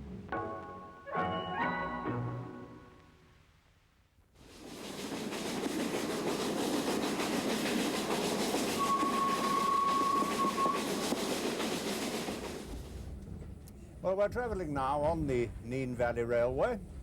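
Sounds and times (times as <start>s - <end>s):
steam train running on track: 4.4s - 13.6s.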